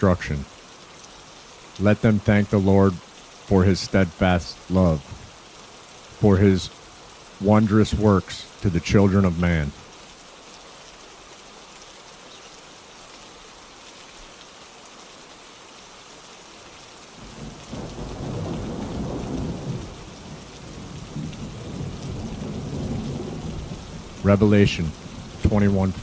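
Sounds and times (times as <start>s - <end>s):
steady rainfall: 0.0s - 26.0s
thunder rumbling: 17.3s - 26.0s.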